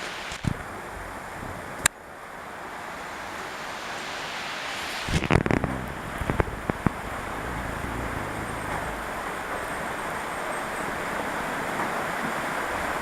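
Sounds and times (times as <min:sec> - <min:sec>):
rain hissing: 0:02.3 - 0:11.6.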